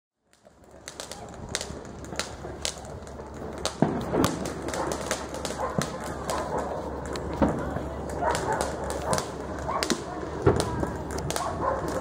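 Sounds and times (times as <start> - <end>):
firecrackers popping: 0.2 - 12.0
loud firework bang: 3.6 - 6.5, 8.3 - 12.0.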